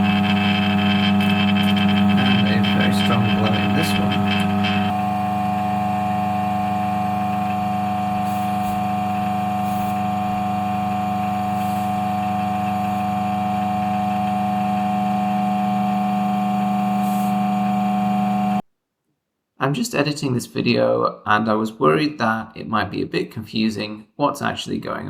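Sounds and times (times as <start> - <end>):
steady electrical hum: 0.0 - 18.6.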